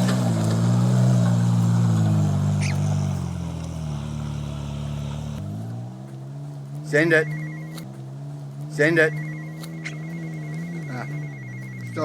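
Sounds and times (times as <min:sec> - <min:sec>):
engine running: 0:00.0 - 0:12.0
high squeak: 0:09.1 - 0:12.0.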